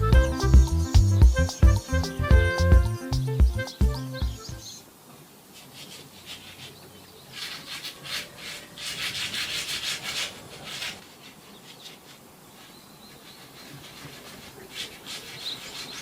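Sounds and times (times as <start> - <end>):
scraping strokes on hard surface: 5.5 - 16.0.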